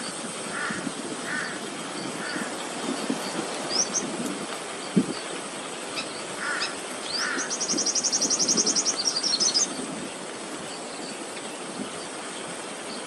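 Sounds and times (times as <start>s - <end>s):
small bird chirping and trilling: 1.4s - 4.2s, 5.9s - 9.8s.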